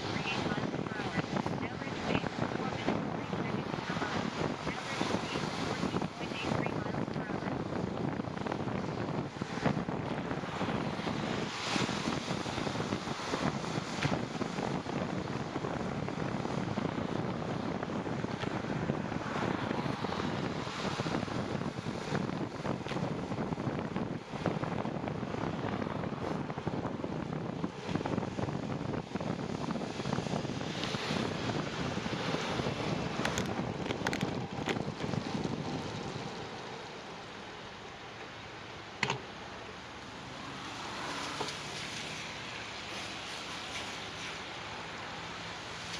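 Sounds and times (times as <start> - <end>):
wind on microphone: 0.0 - 37.4
bicycle tyre road noise: 0.0 - 45.9.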